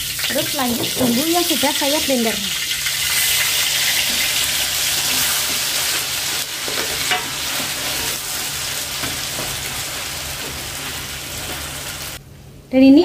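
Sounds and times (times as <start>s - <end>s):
spice paste sizzling in oil: 0.0s - 12.2s
spatula scraping pan: 4.0s - 11.8s.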